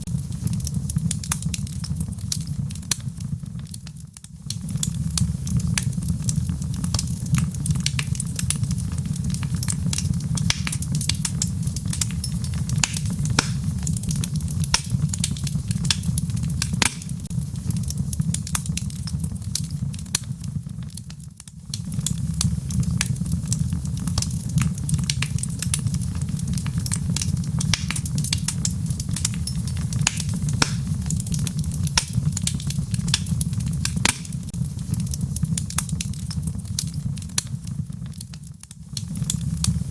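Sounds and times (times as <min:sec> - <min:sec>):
burning wood crackling and popping: 0:00.0 - 0:39.9
low rumble of flames: 0:00.0 - 0:39.9.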